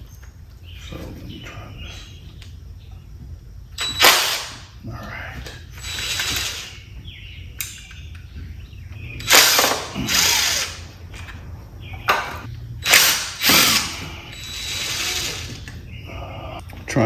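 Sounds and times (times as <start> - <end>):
impact wrench bursts: 3.8 - 4.8, 5.5 - 6.9, 9.1 - 11.3, 12.0 - 15.8.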